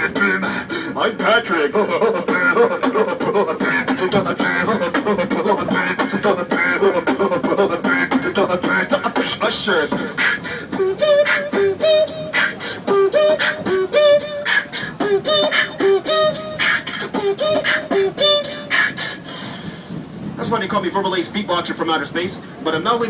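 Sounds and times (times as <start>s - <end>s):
person beatboxing: 0.0s - 20.1s
person humming melody: 1.6s - 19.4s.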